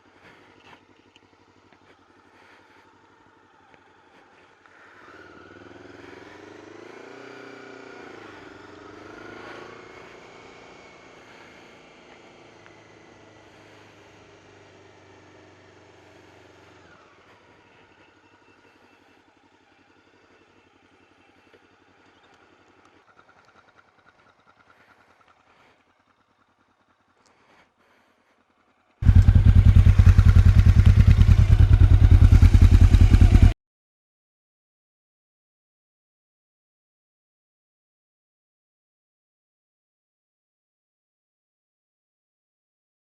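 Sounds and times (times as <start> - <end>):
faint engine hum: 0.0 - 33.6
motorcycle engine running: 0.0 - 33.6.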